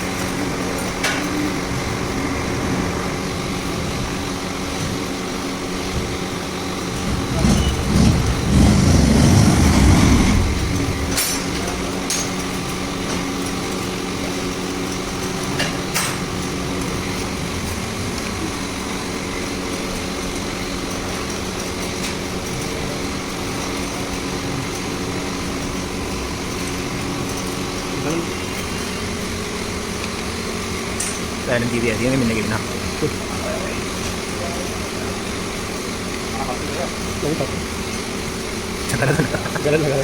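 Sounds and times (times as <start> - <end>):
steady mechanical hum: 0.0 - 40.0
low rumble: 7.1 - 11.2.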